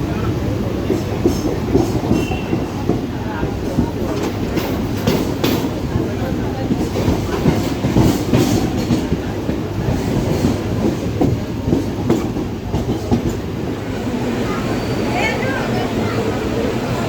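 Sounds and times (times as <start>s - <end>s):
electric train rumbling on rails: 0.0s - 17.0s
wheels clicking over rail joints: 0.8s - 13.6s.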